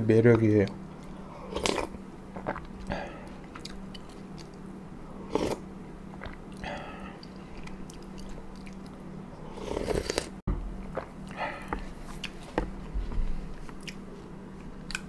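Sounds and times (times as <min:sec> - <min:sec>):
steady low hum: 0:00.0 - 0:15.0
person chewing and biting food: 0:01.0 - 0:04.6, 0:05.4 - 0:12.7, 0:13.5 - 0:15.0.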